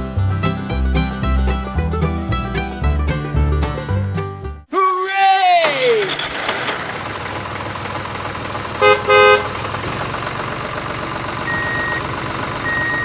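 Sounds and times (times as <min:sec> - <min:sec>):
tractor engine rumbling: 0:00.0 - 0:13.0
horn honks: 0:08.8 - 0:09.7.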